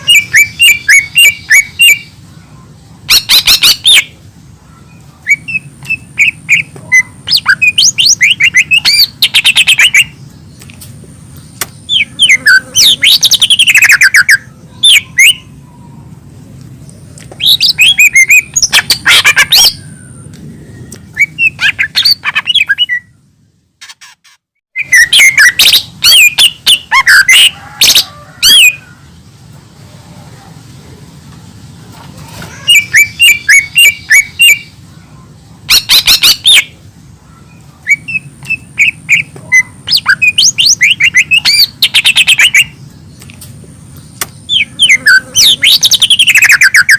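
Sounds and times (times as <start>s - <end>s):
low steady hum: 0.0s - 23.9s
leafbird singing: 0.0s - 46.9s.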